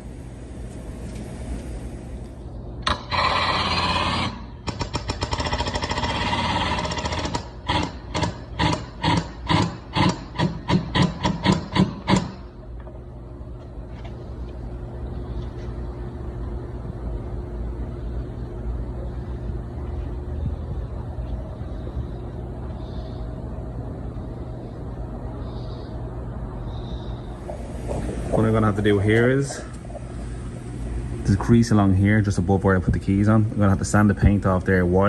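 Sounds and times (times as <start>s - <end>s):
steady low hum: 0.0s - 35.0s
rattling impacts on metal: 2.8s - 12.5s.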